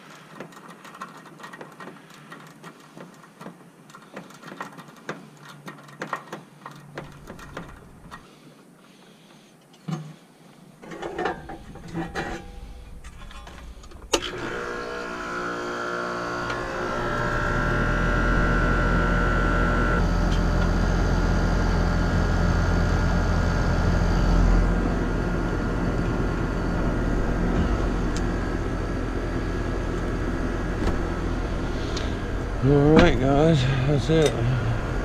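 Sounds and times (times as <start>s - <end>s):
heat pump humming: 10.8s - 35.0s.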